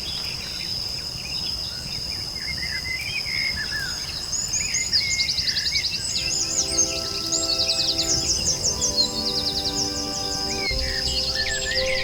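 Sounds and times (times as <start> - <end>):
birds chirping and trilling: 0.0 - 12.0
high-pitched insect drone: 6.2 - 12.0
soft sustained music notes: 6.2 - 12.0.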